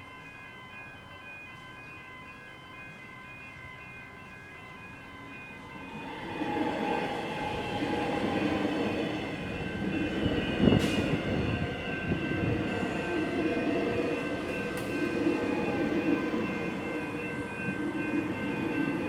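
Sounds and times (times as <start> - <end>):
level-crossing bell ringing: 0.0 - 19.0
electric train rumbling: 0.1 - 19.0
wheels clanking on rails: 5.8 - 19.0.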